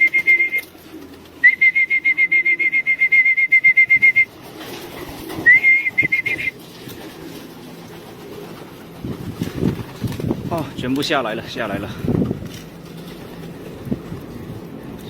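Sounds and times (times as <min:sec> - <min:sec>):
trilling whistle bursts: 0:00.0 - 0:00.7, 0:01.4 - 0:04.3, 0:05.4 - 0:06.6.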